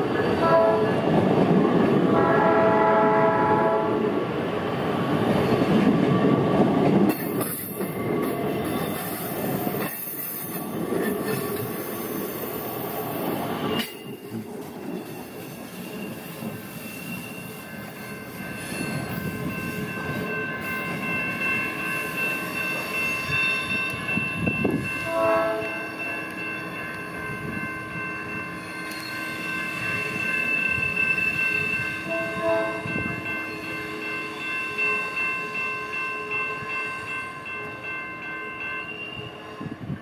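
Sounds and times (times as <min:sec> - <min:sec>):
train horn: 0:00.1 - 0:01.0, 0:02.1 - 0:04.2, 0:25.0 - 0:25.9, 0:32.0 - 0:33.0
high-pitched ringing: 0:15.3 - 0:39.8.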